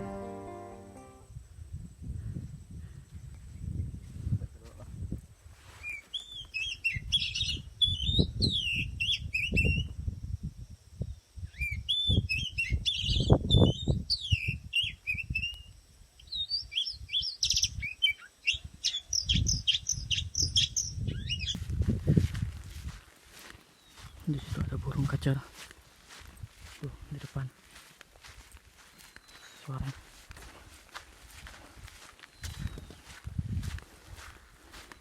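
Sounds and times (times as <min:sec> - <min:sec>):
bird singing whistled phrases: 0:05.8 - 0:09.9, 0:11.5 - 0:21.6.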